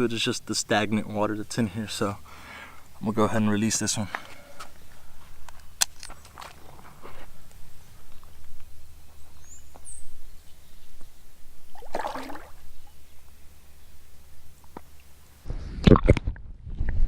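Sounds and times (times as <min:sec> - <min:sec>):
high bird chirp: 0:09.0 - 0:11.1
fish splashing in water: 0:11.7 - 0:12.6
wind rumble on microphone: 0:15.4 - 0:17.0.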